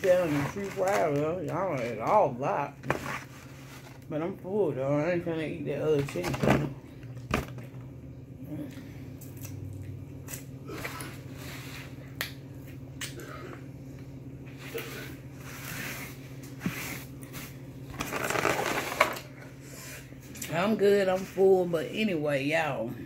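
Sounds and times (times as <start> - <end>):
foam container rustling: 0.0 - 2.1, 2.8 - 4.1
low hum: 0.0 - 23.0.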